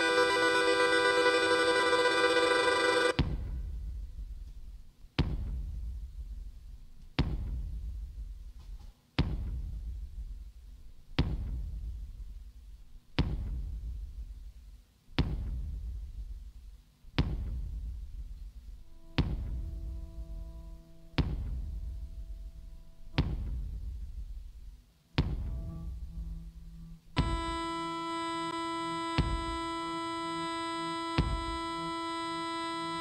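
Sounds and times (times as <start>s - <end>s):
deep drum hits: 3.2s - 8.6s, 9.2s - 14.5s, 15.2s - 27.7s, 29.2s - 29.7s, 31.2s - 31.7s.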